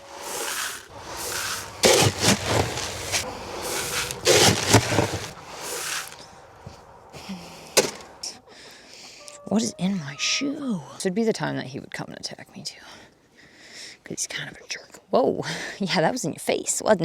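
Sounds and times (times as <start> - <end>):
grain rustling and rattling: 0.0 - 6.2
sharp knock: 7.8 - 8.1
clattering knocks: 7.8 - 8.2.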